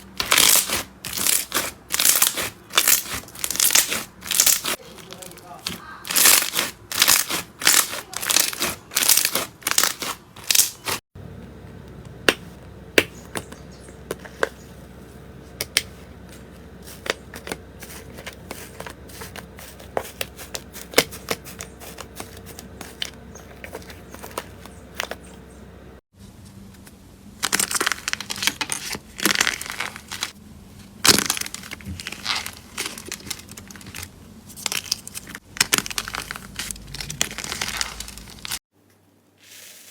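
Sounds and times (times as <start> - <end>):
faint steady hum: 11.2 - 39.4.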